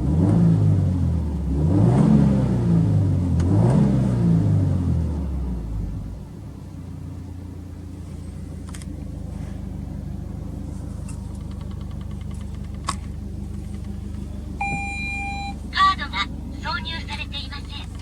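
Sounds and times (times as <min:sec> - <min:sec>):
car engine idling: 0:04.6 - 0:18.0.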